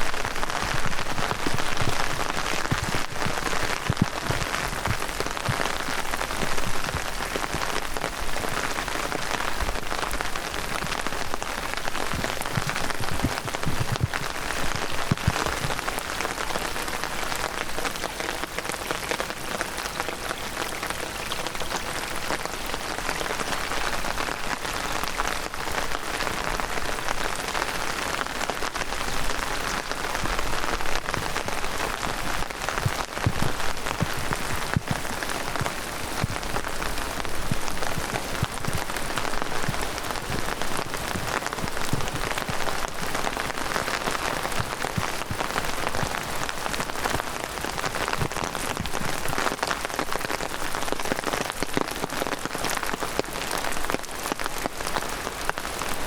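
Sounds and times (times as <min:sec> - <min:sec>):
heavy rain falling: 0:00.0 - 0:56.0
dull low thuds: 0:12.1 - 0:14.4.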